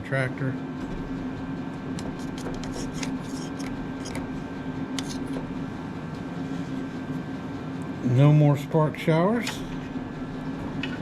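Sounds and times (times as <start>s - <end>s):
low background hum: 0.0s - 11.0s
hand tools clicking and scraping: 2.0s - 4.3s.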